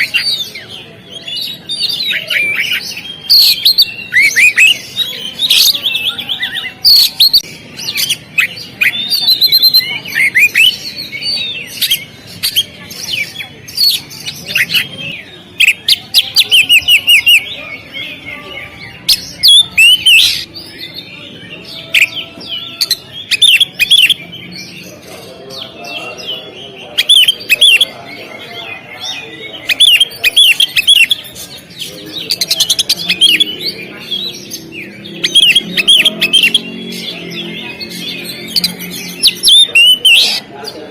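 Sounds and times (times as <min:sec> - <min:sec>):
bird singing whistled notes: 0:32.2 - 0:40.4.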